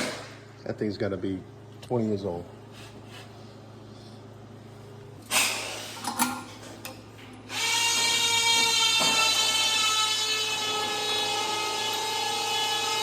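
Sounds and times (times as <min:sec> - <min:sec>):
power drill whining: 0:07.5 - 0:13.0.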